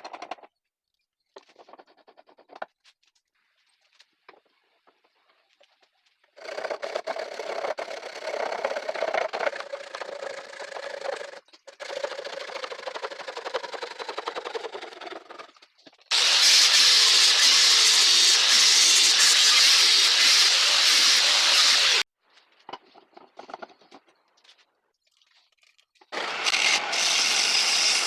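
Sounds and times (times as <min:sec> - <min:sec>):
loud steady hiss: 0:16.1 - 0:22.0
small electric power tool: 0:16.1 - 0:22.1, 0:26.1 - 0:28.0.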